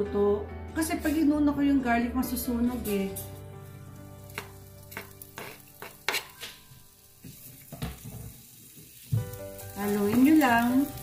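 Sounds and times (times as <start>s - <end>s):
ginger sizzling in oil: 3.2s - 11.0s
wooden spatula scraping pan: 4.3s - 6.6s.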